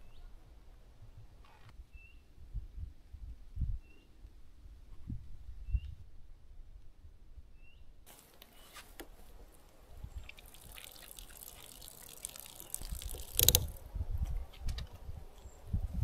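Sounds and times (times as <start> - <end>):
water dripping and trickling: 10.1 - 13.8.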